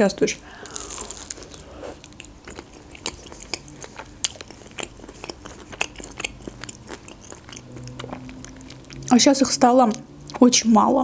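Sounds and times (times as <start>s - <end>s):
crunchy pastry chewing: 0.5s - 9.3s.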